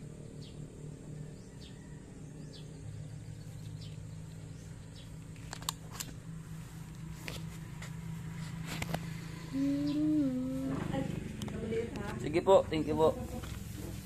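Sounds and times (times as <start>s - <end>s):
steady low hum: 0.0s - 14.0s
sharp clicks: 5.4s - 6.2s
faint bird chirps: 9.2s - 10.6s.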